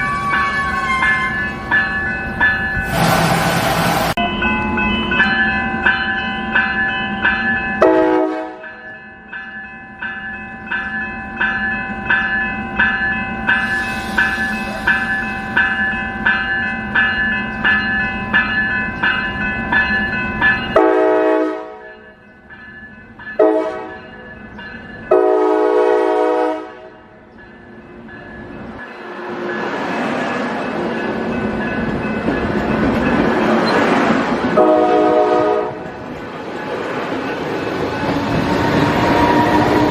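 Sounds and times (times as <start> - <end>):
train horn blasts: 0.0 - 1.4, 2.8 - 4.4, 7.8 - 8.7, 20.8 - 21.9, 23.4 - 24.0, 25.1 - 27.1, 34.6 - 35.8, 38.6 - 39.9
crossing bell ringing: 0.0 - 3.1, 4.1 - 39.9
train rumble: 0.0 - 8.7, 12.0 - 39.9.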